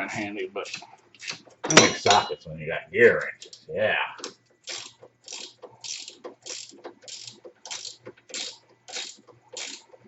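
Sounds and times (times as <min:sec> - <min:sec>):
ratchet wrench clicking: 0:04.2 - 0:10.0.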